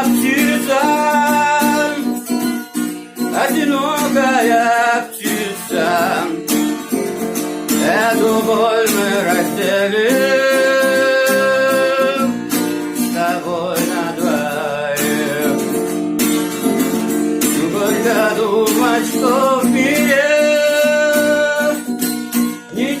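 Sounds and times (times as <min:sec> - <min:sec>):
acoustic guitar: 0:00.0 - 0:23.0
person singing long notes: 0:17.6 - 0:22.0.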